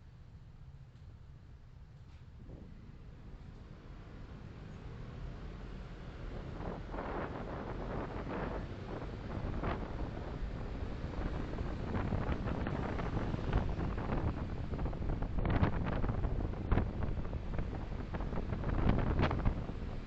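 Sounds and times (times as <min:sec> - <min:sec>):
car road and wind noise: 0:02.3 - 0:20.0.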